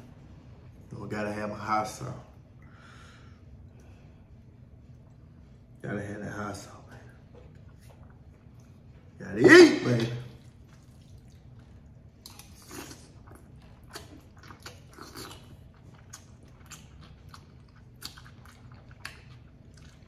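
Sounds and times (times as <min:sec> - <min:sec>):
person chewing with wet smacks: 0:07.2 - 0:09.2, 0:10.2 - 0:20.0.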